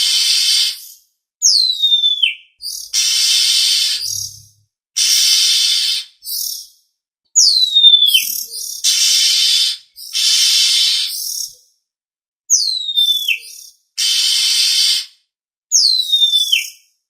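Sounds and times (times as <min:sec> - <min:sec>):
bird whistled notes and chirps: 0:00.0 - 0:06.8, 0:07.4 - 0:11.6, 0:12.5 - 0:15.1, 0:15.7 - 0:16.9
bird rasping calls: 0:02.9 - 0:04.4, 0:08.2 - 0:11.4, 0:14.0 - 0:15.1.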